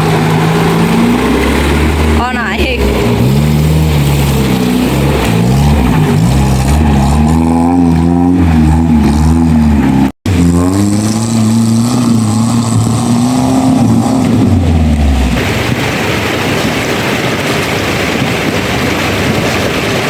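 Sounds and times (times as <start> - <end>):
off-road vehicle engine revving: 0.0 - 15.8.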